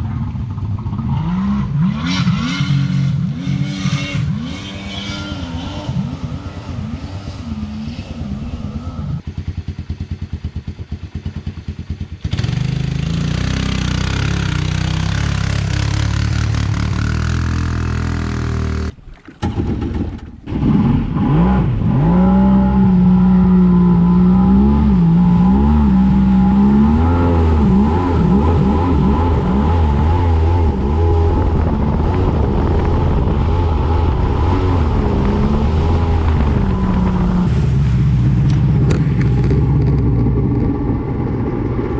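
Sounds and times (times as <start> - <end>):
watercraft engine running: 22.6 - 41.9.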